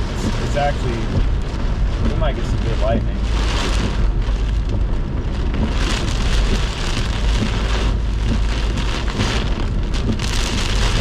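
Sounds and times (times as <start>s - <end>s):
deep rumble: 0.0s - 11.0s
heavy rain on a car: 0.0s - 11.0s.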